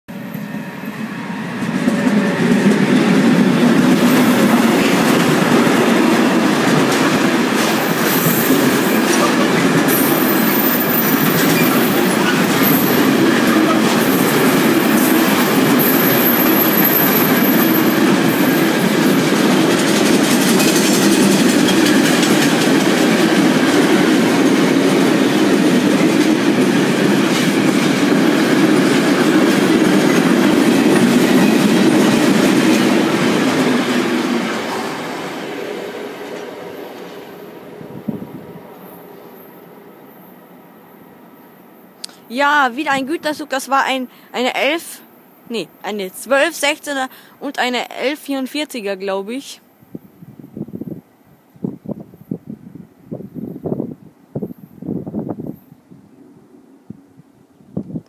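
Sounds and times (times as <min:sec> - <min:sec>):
train wheels rumbling on rails: 0:00.1 - 0:40.2.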